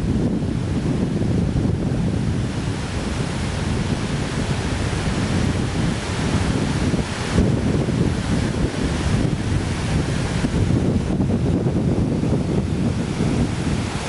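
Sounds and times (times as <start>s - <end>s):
floodwater rushing: 0.0s - 14.0s
wind on microphone: 0.0s - 14.0s.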